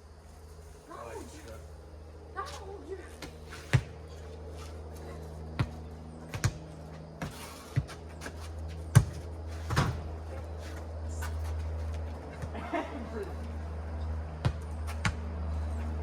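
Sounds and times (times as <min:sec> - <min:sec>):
steady low hum: 0:00.0 - 0:16.0
ball bouncing and being hit: 0:03.2 - 0:04.0, 0:05.5 - 0:10.1, 0:14.4 - 0:15.2.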